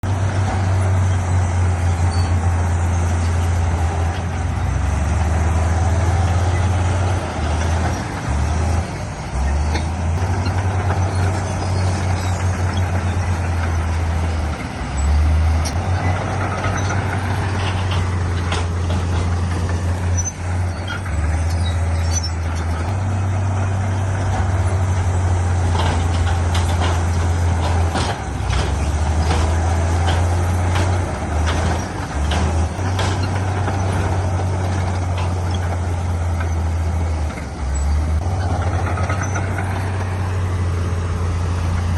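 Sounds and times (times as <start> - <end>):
heavy machinery diesel engines: 0.0 - 41.9
sharp metal clanks and knocks: 15.6 - 23.1, 25.5 - 36.6.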